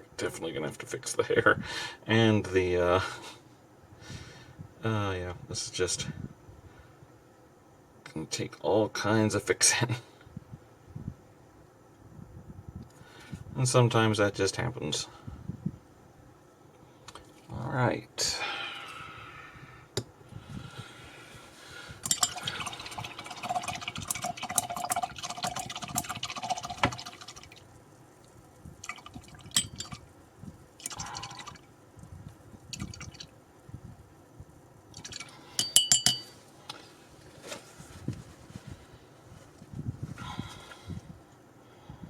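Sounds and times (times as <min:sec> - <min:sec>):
glassy clinks: 0:22.0 - 0:22.6, 0:29.5 - 0:30.0, 0:35.6 - 0:36.4.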